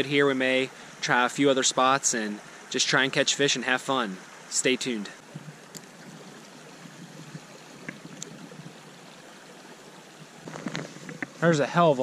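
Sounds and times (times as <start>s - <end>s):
stream running over rocks: 0.0s - 12.0s
faint clicks: 5.4s - 6.6s, 7.4s - 8.5s.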